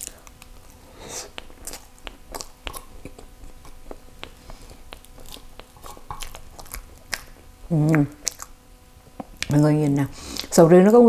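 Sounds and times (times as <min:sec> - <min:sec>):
wet chewing clicks and smacks: 0:01.3 - 0:08.6.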